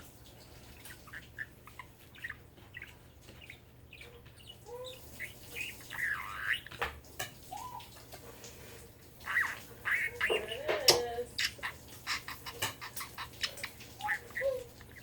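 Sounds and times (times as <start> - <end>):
budgerigar chattering and chirping: 0.8 - 6.8, 9.2 - 15.0
budgerigar clicks: 9.3 - 15.0.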